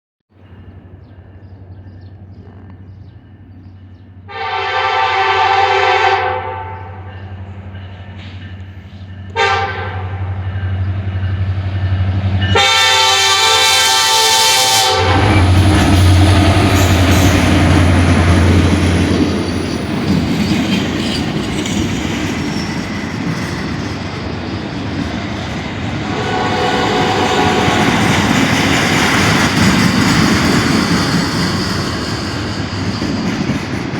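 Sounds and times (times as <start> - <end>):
train rushing rumble: 0.3 - 33.9
train horn blasts: 4.3 - 7.2, 9.3 - 10.6, 12.4 - 16.9, 26.0 - 28.2.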